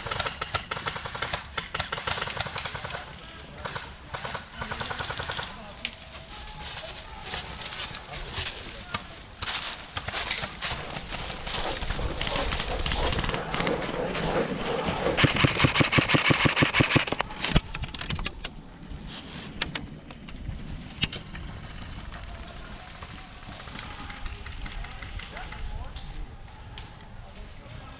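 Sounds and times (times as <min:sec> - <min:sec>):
rapid automatic airsoft fire: 0:00.0 - 0:05.5, 0:10.0 - 0:17.2
outdoor movement noise: 0:00.0 - 0:27.9.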